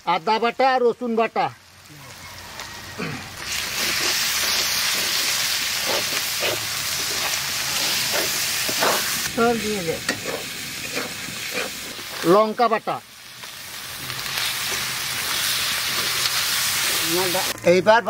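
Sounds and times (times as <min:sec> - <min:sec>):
paste sizzling in hot oil: 0:01.5 - 0:17.6
metal spatula scraping pan: 0:10.1 - 0:12.2.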